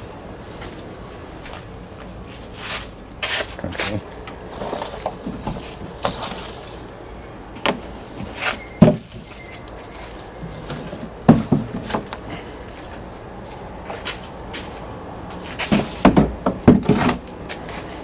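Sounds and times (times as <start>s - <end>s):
things being handled: 2.6s - 13.0s.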